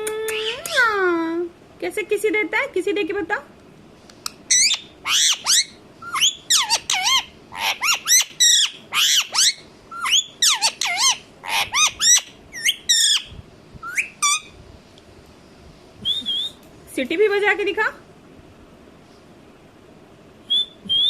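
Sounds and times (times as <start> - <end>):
parrot squawking: 4.5 - 14.5.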